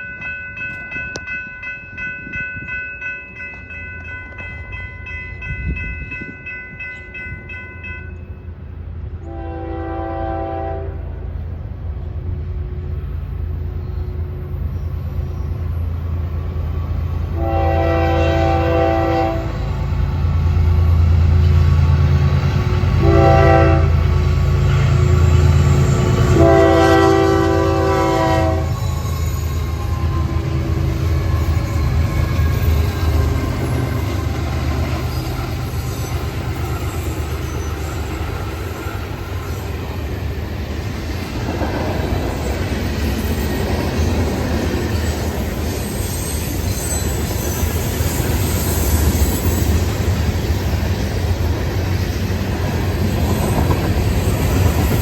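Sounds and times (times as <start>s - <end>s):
train rumbling past: 0.0s - 55.0s
locomotive horn blasts: 9.2s - 11.2s, 17.3s - 19.7s, 23.0s - 24.1s, 26.2s - 28.8s.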